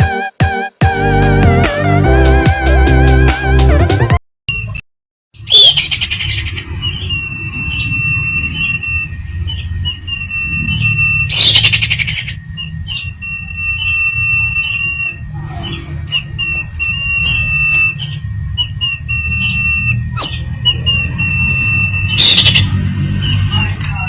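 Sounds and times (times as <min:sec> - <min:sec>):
harsh rasping bird chatter: 0:05.4 - 0:15.0, 0:15.6 - 0:24.0
bird whistling high notes: 0:19.3 - 0:22.7.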